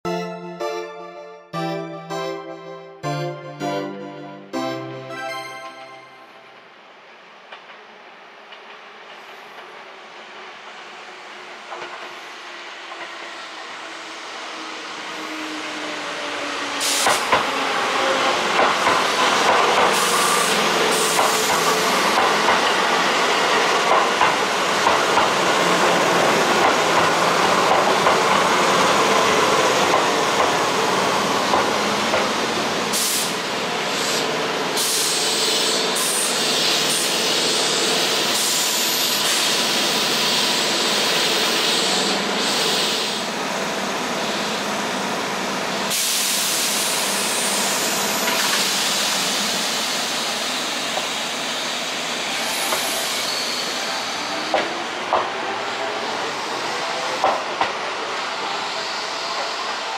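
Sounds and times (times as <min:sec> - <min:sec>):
electric train rolling past: 0:04.5 - 0:59.9
hiss: 0:16.8 - 0:17.4, 0:32.9 - 0:43.3, 0:45.9 - 0:54.5.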